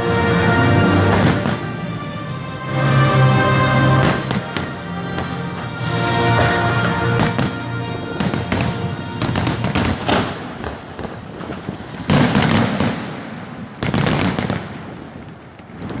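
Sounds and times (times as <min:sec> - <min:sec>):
fireworks bursting and crackling: 0:00.0 - 0:02.4, 0:03.8 - 0:16.0
loud firework bangs: 0:06.4 - 0:16.0.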